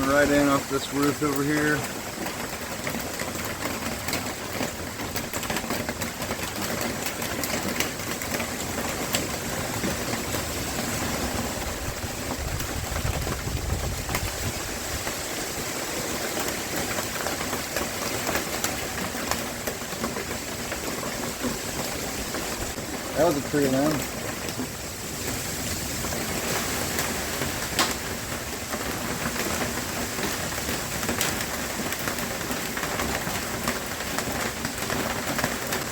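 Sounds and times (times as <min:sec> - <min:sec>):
hurricane wind and rain: 0:00.0 - 0:35.9
ticks of rain and debris: 0:00.0 - 0:35.9
wind gust buffeting microphone: 0:11.2 - 0:15.2.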